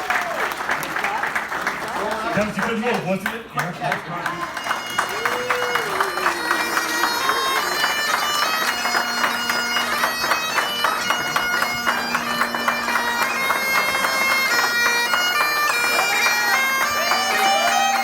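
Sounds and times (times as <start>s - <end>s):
bagpipes playing a tune: 4.3s - 18.0s.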